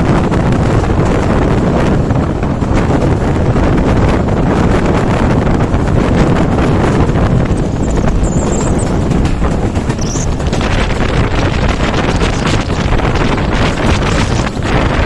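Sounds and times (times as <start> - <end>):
train passing at speed: 0.0 - 15.0
wind buffeting microphone: 0.0 - 15.0
wheels clattering over rails: 5.6 - 14.9.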